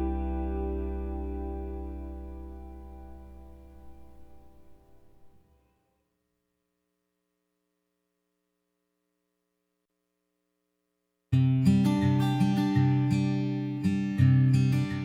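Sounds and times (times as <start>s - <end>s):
acoustic guitar music: 0.0s - 5.4s, 11.4s - 15.0s
faint steady hum: 0.0s - 5.6s.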